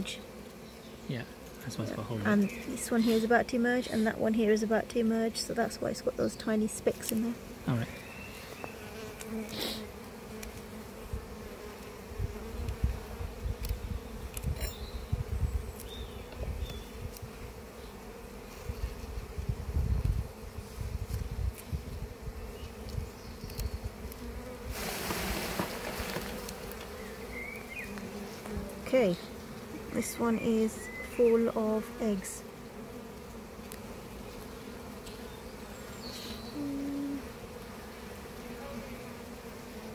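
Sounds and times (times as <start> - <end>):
bees buzzing: 0.0 - 39.9
hissing noise: 24.7 - 26.3.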